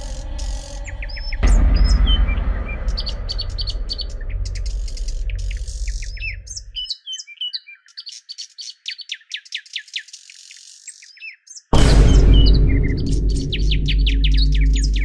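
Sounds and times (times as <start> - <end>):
deep bass low tones: 0.0 - 6.8, 11.8 - 15.0
birds chirping and twittering: 0.0 - 15.0.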